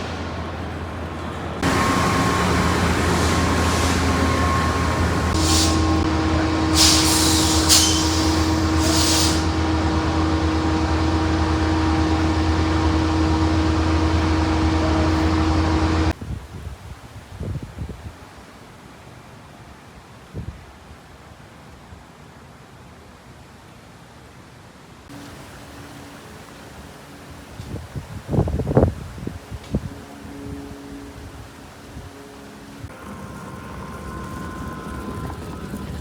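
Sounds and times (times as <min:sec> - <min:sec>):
factory machinery humming: 0:00.0 - 0:16.2, 0:28.4 - 0:36.0
short hisses of air: 0:02.3 - 0:06.0, 0:06.7 - 0:09.5.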